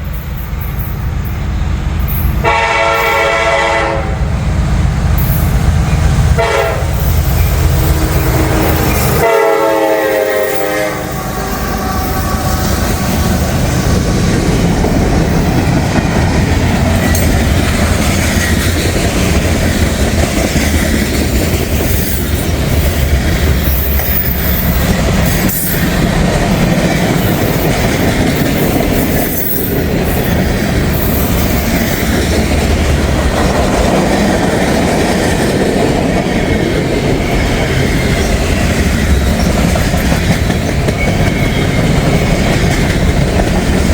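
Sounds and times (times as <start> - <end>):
locomotive horn: 2.4 - 4.4, 6.3 - 7.1, 7.8 - 13.4
freight cars rumbling and clattering: 4.6 - 9.3, 12.0 - 43.9.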